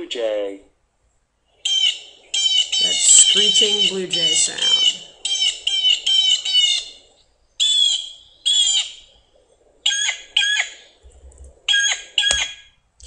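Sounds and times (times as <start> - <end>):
blue jay screeching: 1.5 - 9.1, 9.8 - 10.9, 11.7 - 12.6.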